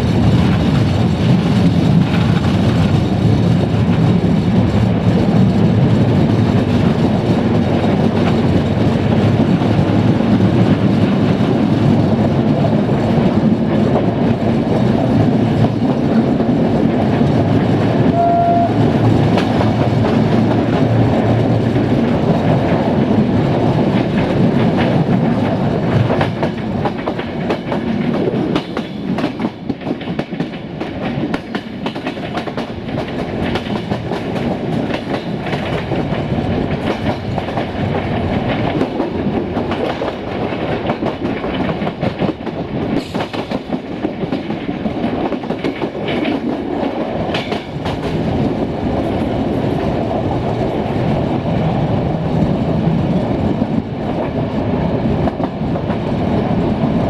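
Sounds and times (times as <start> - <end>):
train rolling at speed: 0.0 - 57.0
wheels clicking over rail joints: 0.2 - 52.4
short high tone: 18.1 - 18.8.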